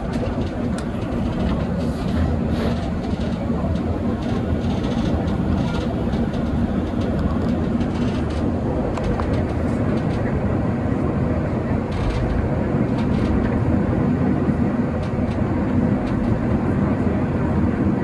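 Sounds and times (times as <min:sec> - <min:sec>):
funicular car rumbling: 0:00.0 - 0:18.0.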